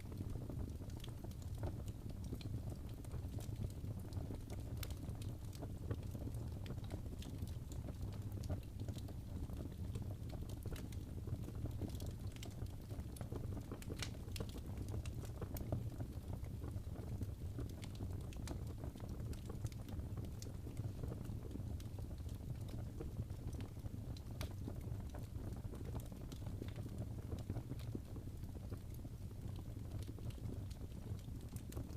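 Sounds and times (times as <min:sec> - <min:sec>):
wood fire crackling: 0:00.0 - 0:31.9.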